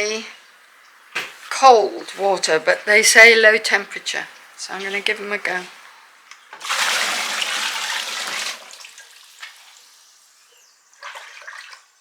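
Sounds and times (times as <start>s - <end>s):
water poured into a tub: 4.8s - 12.0s.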